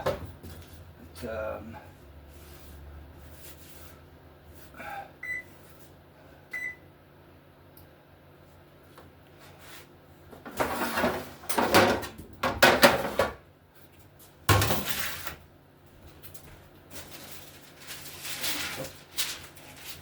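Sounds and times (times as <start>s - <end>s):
low steady hum: 0.0s - 20.0s
baking sheet scraping and clattering: 9.4s - 13.4s, 14.5s - 15.4s, 16.9s - 20.0s.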